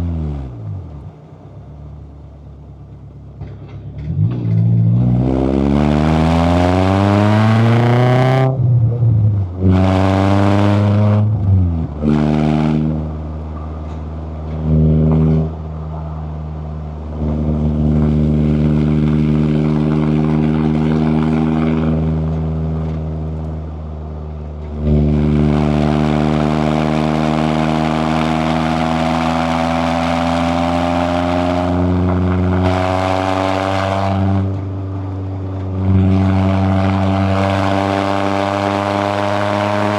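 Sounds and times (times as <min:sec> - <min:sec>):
car engine accelerating through gears: 0:00.0 - 0:39.9.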